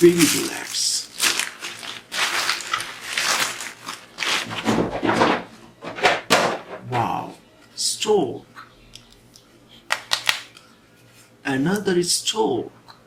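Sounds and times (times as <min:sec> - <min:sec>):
plastic toy parts rustling and knocking: 0:00.0 - 0:07.0.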